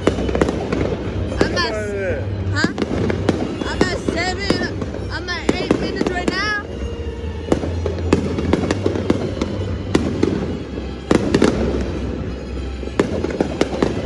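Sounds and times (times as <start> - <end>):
dense crackling: 0.0 - 11.8
fireworks banging: 0.0 - 14.0.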